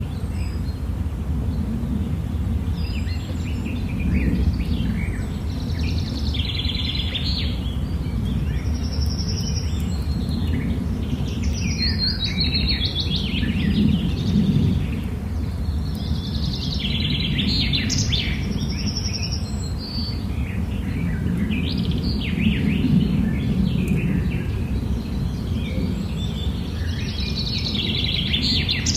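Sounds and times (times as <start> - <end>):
songbirds singing: 0.0 - 28.9.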